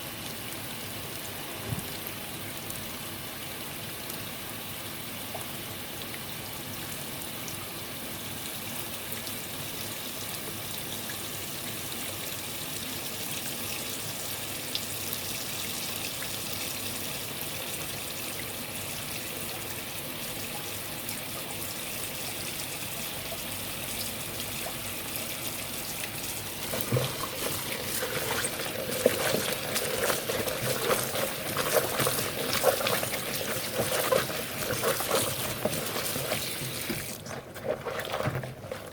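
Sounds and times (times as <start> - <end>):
water running from tap: 8.4 - 38.9.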